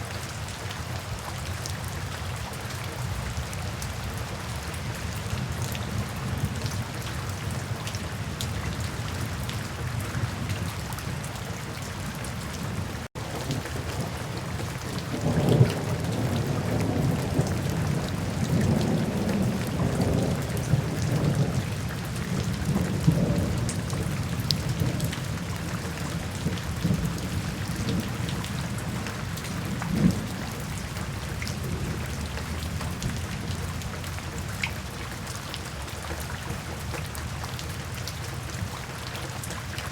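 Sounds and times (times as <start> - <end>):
steady rain falling: 0.0 - 39.9
rolling thunder: 12.6 - 33.9.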